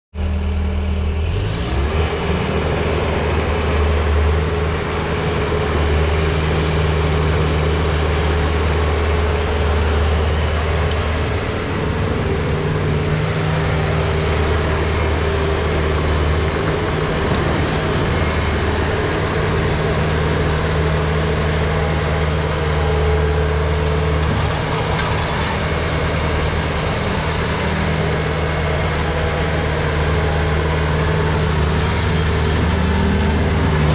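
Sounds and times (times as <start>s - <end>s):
diesel engine running: 0.2s - 33.9s.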